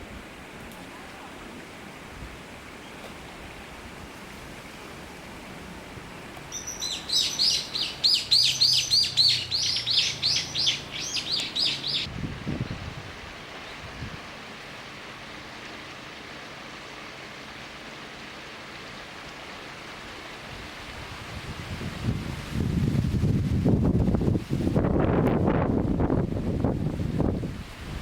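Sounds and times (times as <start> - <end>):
kingfisher shrill calls: 6.5 - 12.1.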